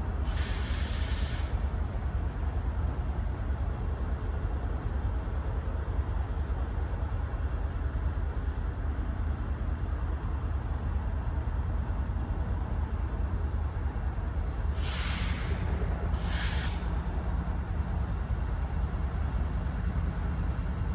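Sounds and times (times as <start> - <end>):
steady low rumble: 0.0 - 20.9
air brakes hissing: 0.2 - 1.8, 14.5 - 17.0.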